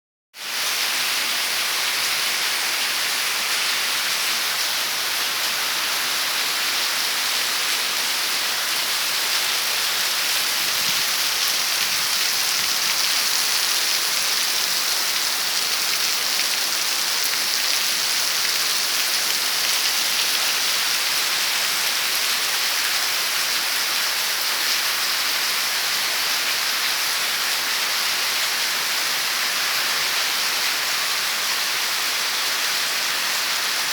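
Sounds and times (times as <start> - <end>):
heavy rain on hard surfaces: 0.4 - 33.9.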